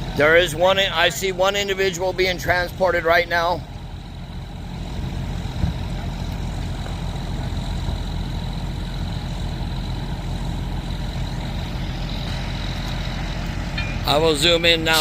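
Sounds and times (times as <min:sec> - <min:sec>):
large engine idling: 0:00.0 - 0:15.0
faint high whine: 0:11.6 - 0:15.0.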